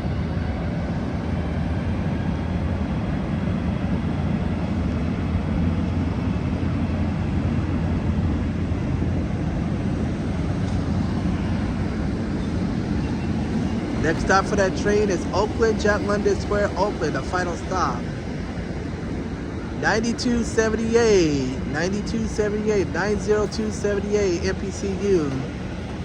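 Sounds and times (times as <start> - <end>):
train engine rumble: 0.0 - 26.0
train wheels on rails: 10.6 - 18.2.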